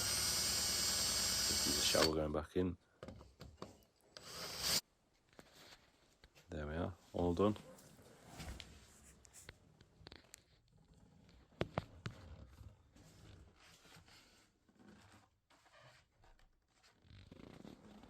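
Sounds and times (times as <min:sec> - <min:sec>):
rustling and handling noises: 0:05.0 - 0:18.0.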